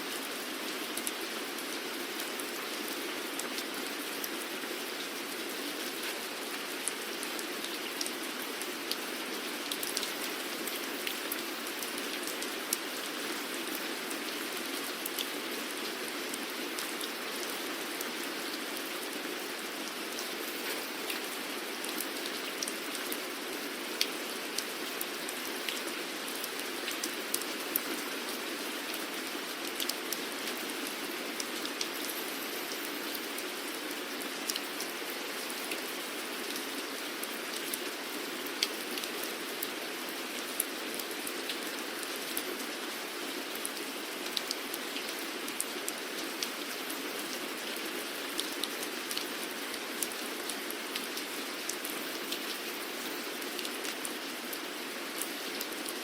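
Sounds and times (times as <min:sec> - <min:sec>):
steady rain: 0:00.0 - 0:56.0
raindrops ticking on a surface: 0:00.1 - 0:56.0.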